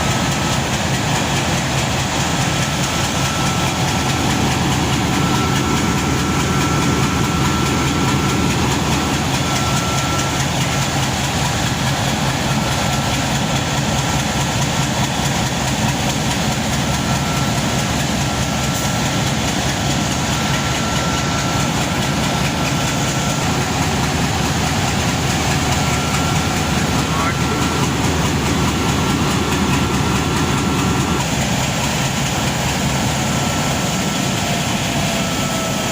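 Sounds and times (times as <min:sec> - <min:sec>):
locomotive engine idling: 0:00.0 - 0:35.9
thin steady whine: 0:16.9 - 0:35.9.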